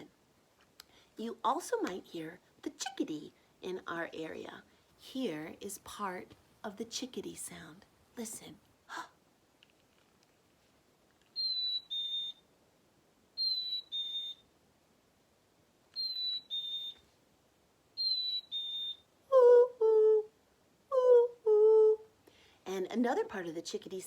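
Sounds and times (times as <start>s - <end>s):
chickadee two-note whistle: 13.4s - 14.4s, 16.0s - 17.0s
woman imitating bird whistle: 13.4s - 14.4s, 16.0s - 17.0s, 18.0s - 20.3s.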